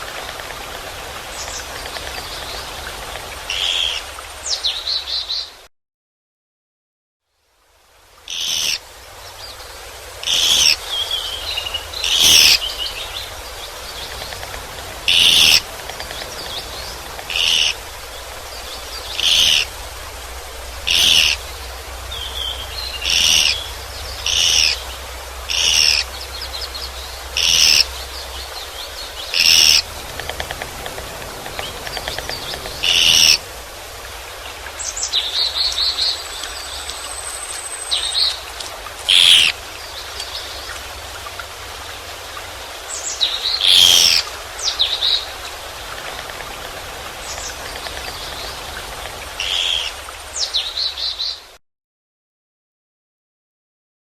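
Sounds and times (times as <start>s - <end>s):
soft bird twittering: 10.2s - 19.8s, 20.7s - 33.7s, 39.1s - 39.6s
bird chatter: 10.2s - 20.0s, 20.6s - 33.9s, 39.1s - 39.5s, 43.4s - 50.0s
woodpecker harsh high call: 12.0s - 12.6s, 15.1s - 15.7s, 17.3s - 17.8s, 19.2s - 19.7s, 20.9s - 21.4s, 23.0s - 23.6s, 24.2s - 24.8s, 25.5s - 26.1s, 27.4s - 27.9s, 31.8s - 33.4s, 39.1s - 39.6s.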